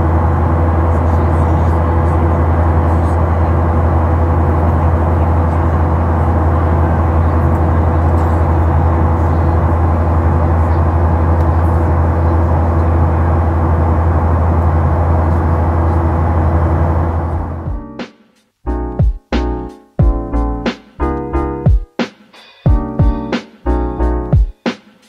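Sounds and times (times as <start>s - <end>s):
airliner cabin engine drone: 0.0s - 18.0s.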